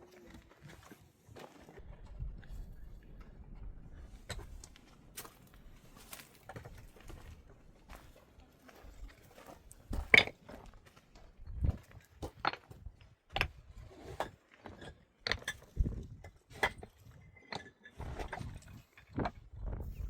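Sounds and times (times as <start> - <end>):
objects knocking and clattering: 9.9 - 10.5, 11.4 - 20.0.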